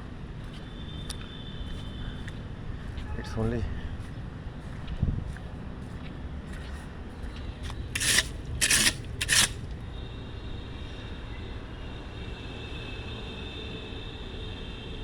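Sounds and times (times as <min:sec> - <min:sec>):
loud scraping noises: 0:08.0 - 0:09.6
metro train whine: 0:09.8 - 0:15.0.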